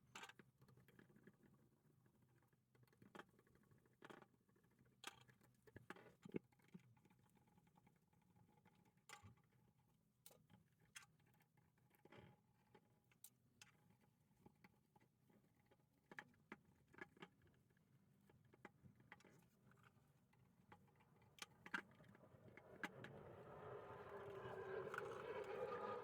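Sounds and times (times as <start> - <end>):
steady noise: 21.5 - 26.0.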